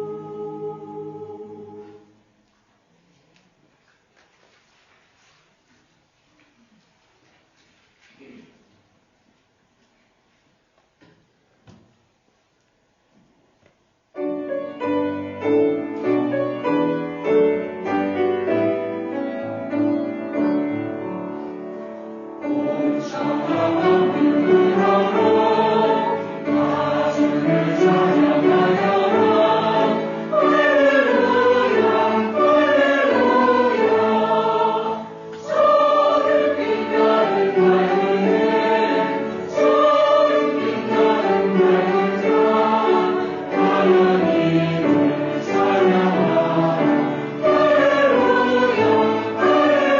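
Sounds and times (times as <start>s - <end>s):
choir singing a hymn: 0.0s - 2.2s, 19.8s - 49.9s
piano accompaniment: 14.1s - 49.9s.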